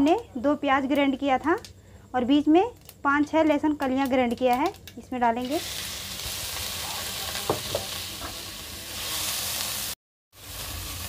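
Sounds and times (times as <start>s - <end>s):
paste sizzling in hot oil: 5.4s - 11.0s.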